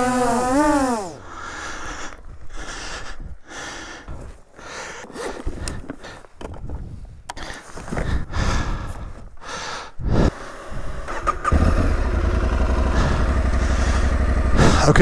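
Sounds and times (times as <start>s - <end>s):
rustling and handling noises: 4.1s - 8.2s
motorcycle engine starting and idling: 10.4s - 15.0s.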